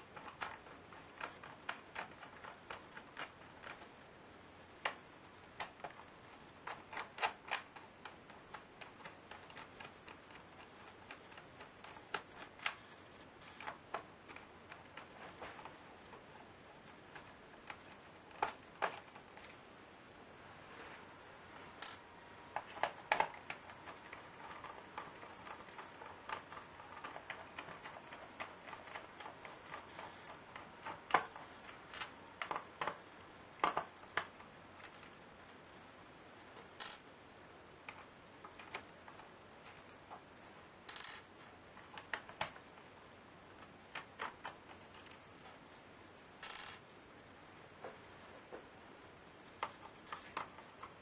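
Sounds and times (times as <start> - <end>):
small parts and screws clicking: 4.8 - 16.2, 21.7 - 35.2, 36.6 - 37.1, 40.8 - 42.6, 43.6 - 45.6, 46.4 - 46.8.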